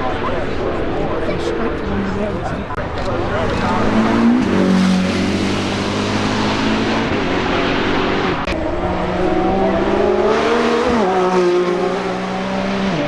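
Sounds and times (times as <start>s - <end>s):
car engine revving hard: 3.2s - 13.0s.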